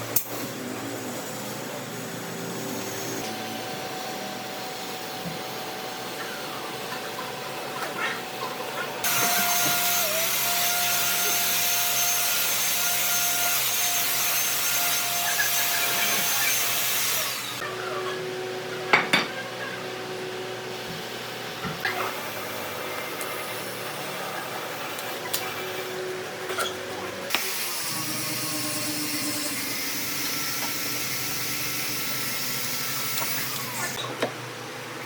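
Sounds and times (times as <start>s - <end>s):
power tool whining: 9.0s - 17.6s, 26.6s - 34.0s.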